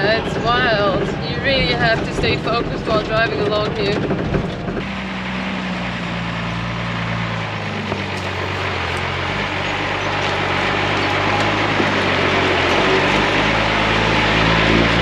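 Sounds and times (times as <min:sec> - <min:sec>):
truck engine running: 0:00.0 - 0:15.0
tyre and road noise: 0:00.0 - 0:15.0.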